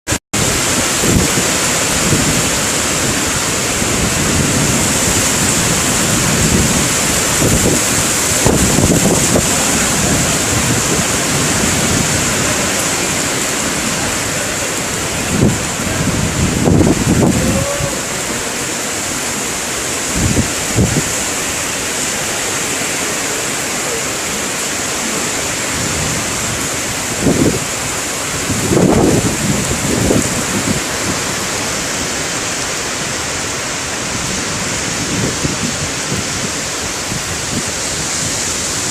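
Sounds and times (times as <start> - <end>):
heavy rain pouring: 0.1 - 38.9
wind buffeting microphone: 0.4 - 22.5, 24.6 - 38.9.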